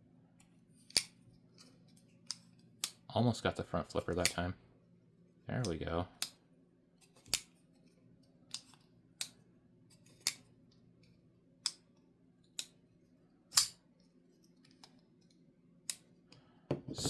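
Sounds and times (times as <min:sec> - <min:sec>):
pocket knife clicking open and shut: 0:00.9 - 0:01.2, 0:13.5 - 0:13.8.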